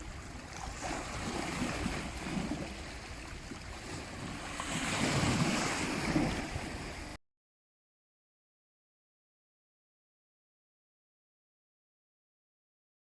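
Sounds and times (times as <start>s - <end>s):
sea waves washing: 0.0s - 7.2s.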